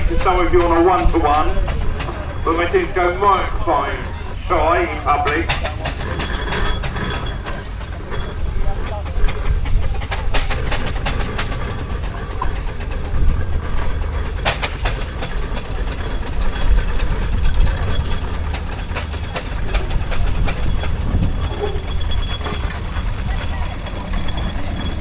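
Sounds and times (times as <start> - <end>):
steam engine chuffs: 0.0 - 25.0
steam engines rumbling: 0.0 - 25.0
metal clanks: 5.1 - 25.0.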